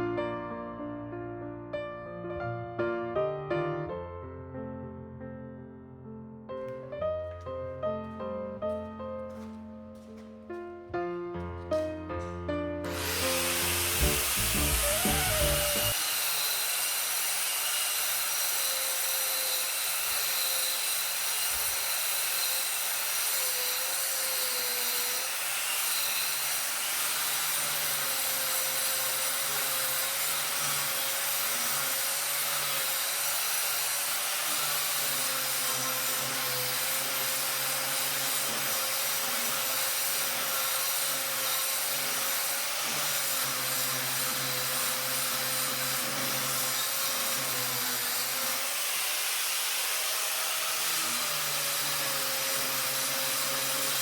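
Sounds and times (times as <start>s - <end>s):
power tool hiss and whine: 12.9s - 54.0s.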